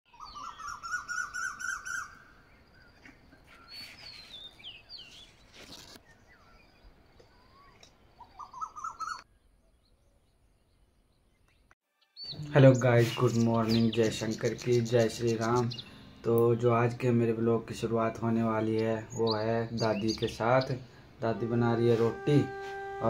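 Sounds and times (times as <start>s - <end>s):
songbirds chirping and singing: 0.1s - 23.0s.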